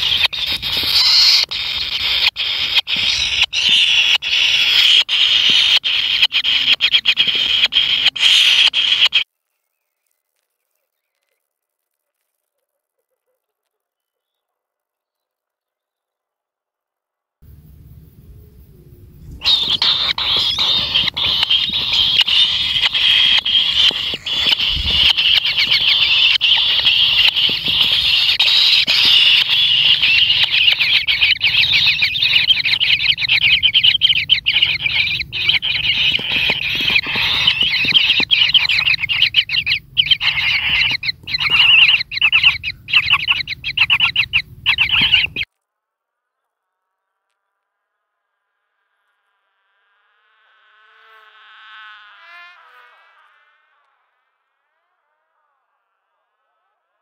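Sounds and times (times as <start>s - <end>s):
nestlings buzzing begging calls: 0.0s - 9.2s, 19.2s - 45.5s.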